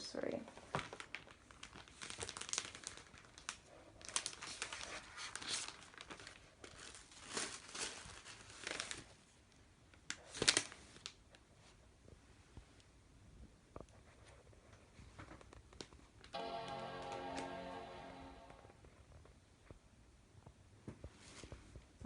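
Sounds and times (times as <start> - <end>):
packaging crinkling and rustling: 0.6 - 9.2, 10.1 - 11.2.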